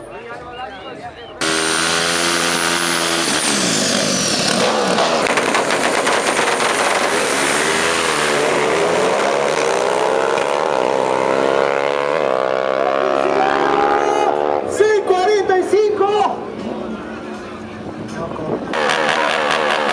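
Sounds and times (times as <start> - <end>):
motorcycle engine revving high: 1.4 - 14.8, 18.7 - 19.9.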